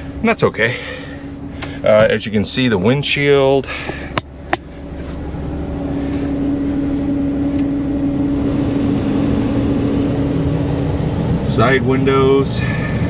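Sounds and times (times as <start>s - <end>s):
heater fan blowing: 0.0s - 13.0s
van engine idling: 0.0s - 13.0s.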